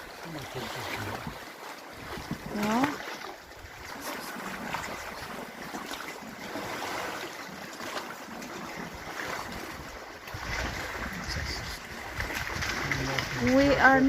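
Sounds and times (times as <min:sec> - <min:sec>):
waves splashing around kayak: 0:00.0 - 0:14.0
wind on microphone: 0:00.8 - 0:01.4, 0:02.0 - 0:02.9, 0:09.3 - 0:14.0.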